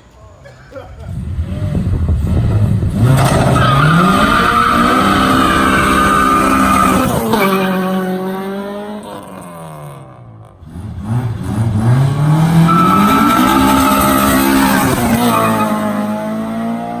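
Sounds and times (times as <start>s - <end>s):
car engine revving: 1.1s - 17.0s
tyres squealing: 3.2s - 7.9s, 12.6s - 15.9s.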